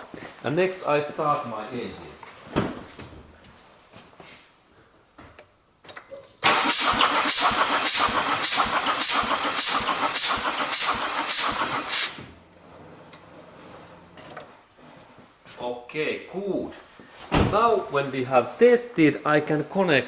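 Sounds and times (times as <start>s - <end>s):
diesel engine starter cranking: 6.4s - 14.2s
air hissing from hose: 6.5s - 12.3s.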